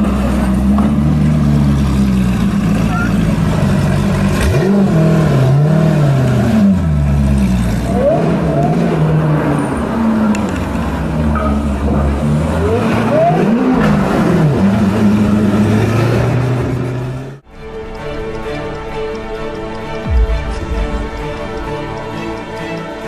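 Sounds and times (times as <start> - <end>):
car engine accelerating hard: 0.0 - 17.4.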